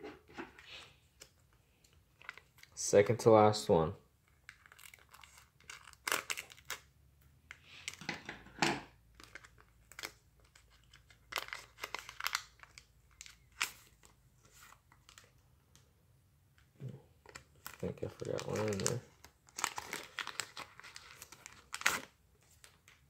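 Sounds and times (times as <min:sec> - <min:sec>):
foil pack tearing and crinkling: 0:04.5 - 0:06.8, 0:09.2 - 0:13.9, 0:17.3 - 0:22.2.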